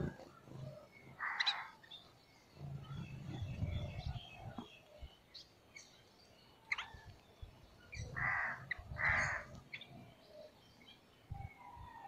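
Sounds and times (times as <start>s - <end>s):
faint bird chirps: 0.0s - 12.0s
harsh caw-like bird calls: 1.2s - 1.9s, 8.0s - 9.6s.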